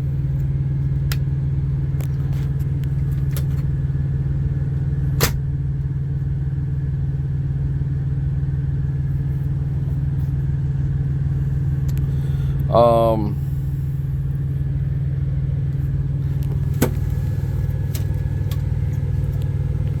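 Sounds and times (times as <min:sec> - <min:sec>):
low drone of power unit: 0:00.0 - 0:20.0
sharp click: 0:05.2 - 0:05.4.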